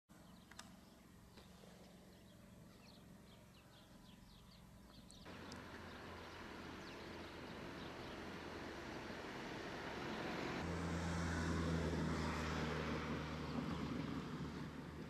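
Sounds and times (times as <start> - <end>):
bird chirping: 0.1 - 9.0.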